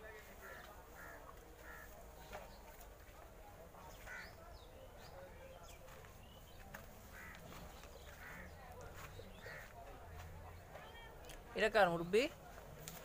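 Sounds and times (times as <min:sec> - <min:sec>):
distant bird calls: 0:00.4 - 0:02.9, 0:03.7 - 0:11.1.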